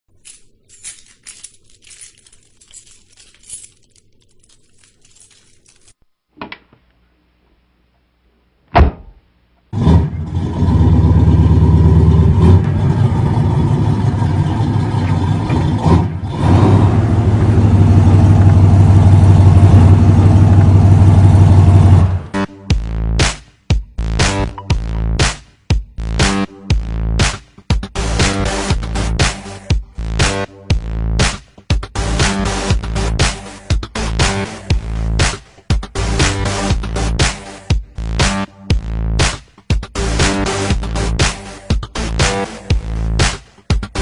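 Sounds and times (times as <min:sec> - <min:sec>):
loud thump: 0:08.7 - 0:09.2
car engine running loudly: 0:09.8 - 0:22.4.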